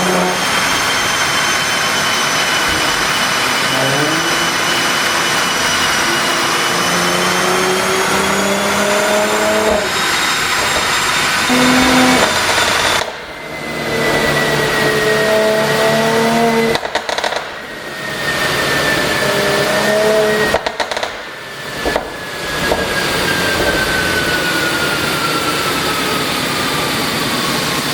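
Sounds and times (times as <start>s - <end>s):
thin whine falling in pitch: 0.0s - 27.0s
car exhaust pulling hard: 0.0s - 27.9s
exhaust pops and crackles: 10.3s - 13.2s, 16.7s - 17.6s, 20.5s - 22.9s.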